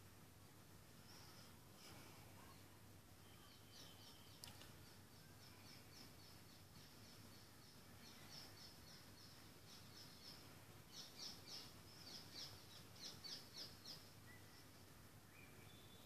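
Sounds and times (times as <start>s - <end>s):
faint low hum: 0.0s - 16.0s
bird chirping: 2.4s - 16.0s.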